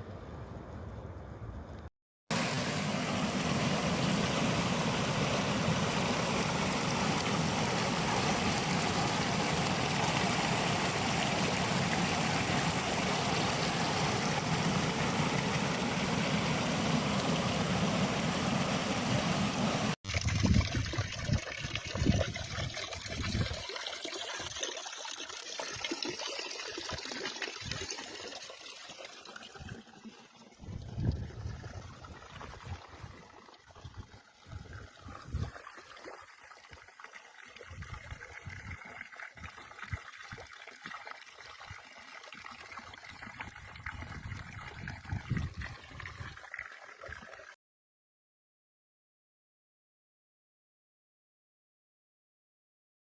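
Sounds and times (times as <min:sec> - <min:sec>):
stream water rushing: 0:02.3 - 0:20.0.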